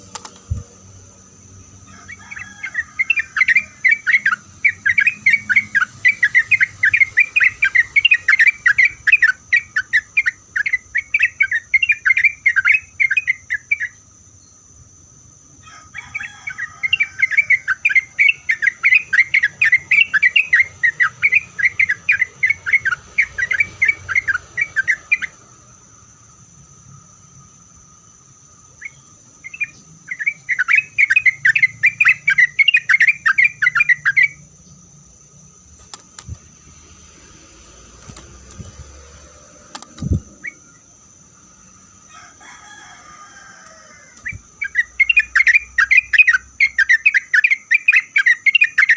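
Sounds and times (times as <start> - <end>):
steady high-pitched hiss: 0.0 - 48.9
bulbul singing chattering notes: 1.6 - 14.0, 44.2 - 48.9.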